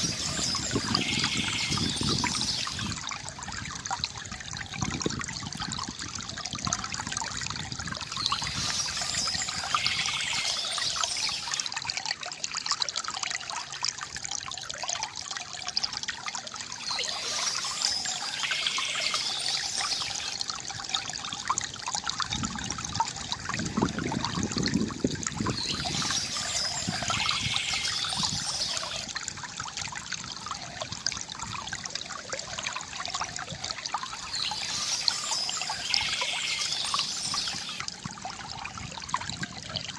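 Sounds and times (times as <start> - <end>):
birds chirping: 0.0 - 3.0, 8.1 - 11.6, 16.8 - 20.4, 25.5 - 29.1, 34.1 - 37.8
water pouring from fountain spout: 0.0 - 39.9.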